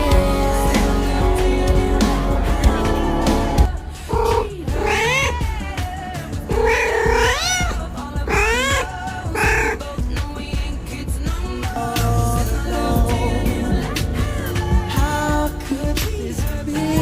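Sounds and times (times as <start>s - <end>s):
background music: 0.0s - 17.0s
cat meowing: 4.1s - 5.4s, 6.5s - 9.8s.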